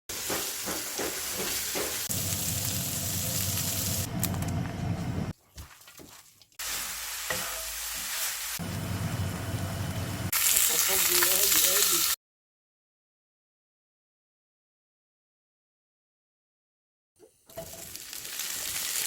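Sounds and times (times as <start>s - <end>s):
food sizzling in frying pan: 0.1s - 4.1s, 6.6s - 12.2s, 17.5s - 19.0s.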